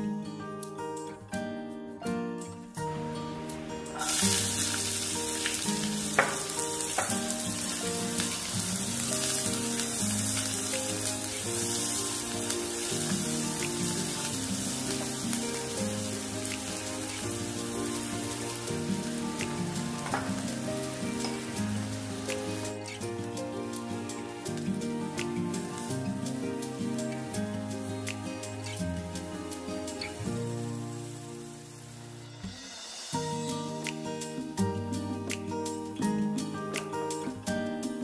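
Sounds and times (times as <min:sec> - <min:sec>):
onions sizzling in a pan: 0:03.0 - 0:34.6
spatula tapping pan: 0:04.0 - 0:15.7.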